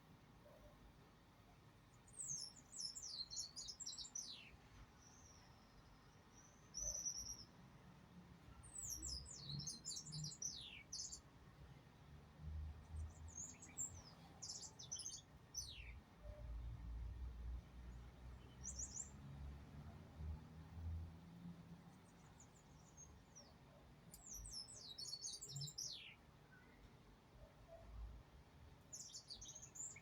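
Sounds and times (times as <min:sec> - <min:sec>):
small bird chirping: 0:24.1 - 0:26.7, 0:28.9 - 0:30.0.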